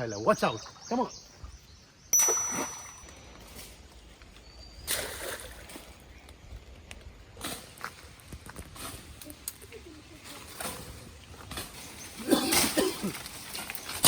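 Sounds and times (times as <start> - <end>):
water splashing in stream: 4.8 - 6.1.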